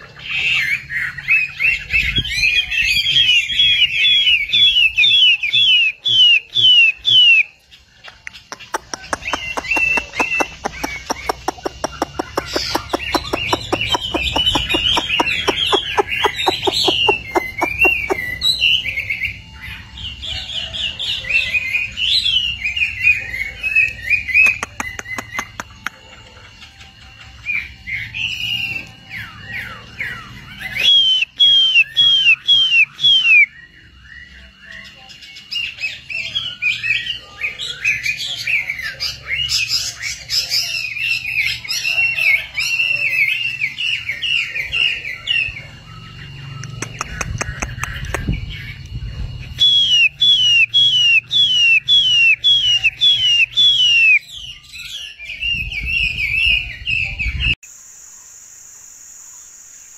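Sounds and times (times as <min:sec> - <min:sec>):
songbird singing: 0:00.0 - 0:59.9.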